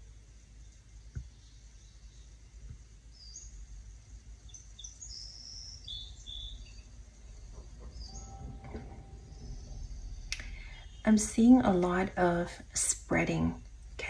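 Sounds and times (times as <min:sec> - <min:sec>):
small bird chirping: 0:00.6 - 0:12.0
steady low rumble: 0:05.5 - 0:14.0.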